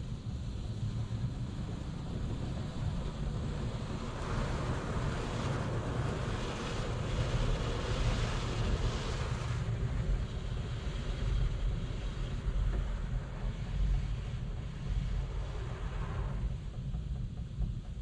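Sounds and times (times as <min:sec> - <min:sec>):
car wash machinery rumbling: 0:00.0 - 0:18.0.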